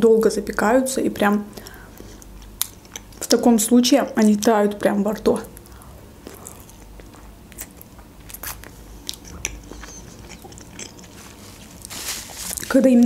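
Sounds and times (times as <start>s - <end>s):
person chewing: 1.6s - 3.3s, 5.6s - 12.7s.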